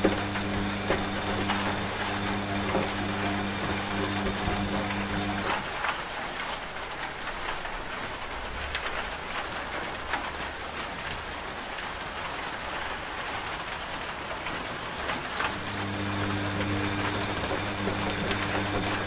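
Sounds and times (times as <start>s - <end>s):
rain hissing: 0.0s - 6.3s, 14.9s - 19.0s.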